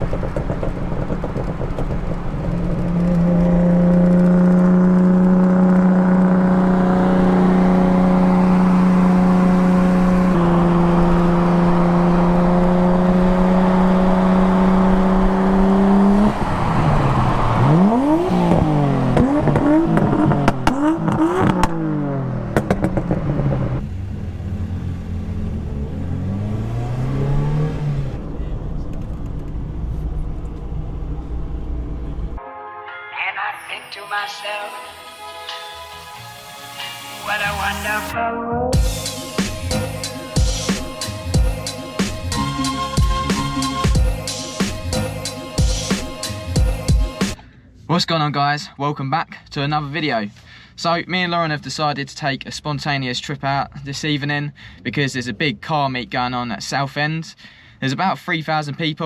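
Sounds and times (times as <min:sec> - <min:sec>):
car engine revving: 0:00.0 - 0:32.4, 0:38.7 - 0:47.4
exhaust cracks: 0:00.0 - 0:32.4.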